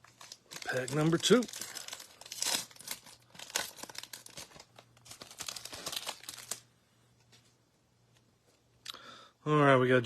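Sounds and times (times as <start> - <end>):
wrapper crinkling and tearing: 0.0 - 6.7.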